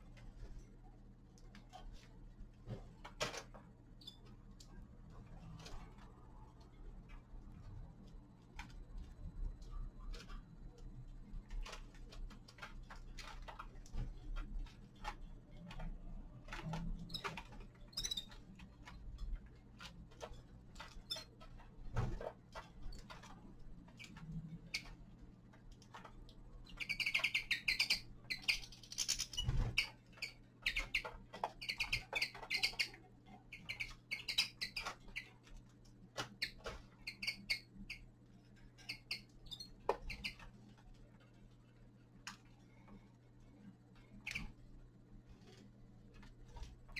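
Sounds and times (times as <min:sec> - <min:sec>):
beaks pecking and cracking seeds: 0:08.0 - 0:40.6
birds twittering chirps: 0:26.6 - 0:35.4, 0:36.3 - 0:38.1, 0:38.8 - 0:40.4.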